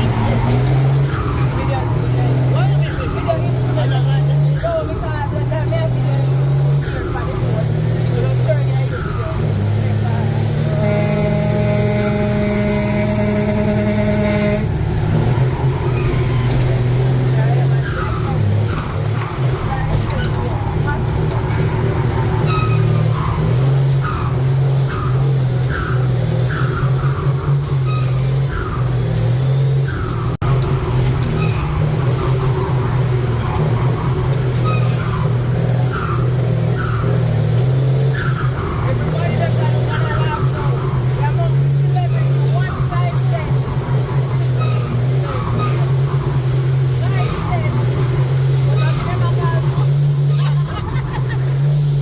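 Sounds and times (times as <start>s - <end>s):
truck engine running: 0.0s - 52.0s.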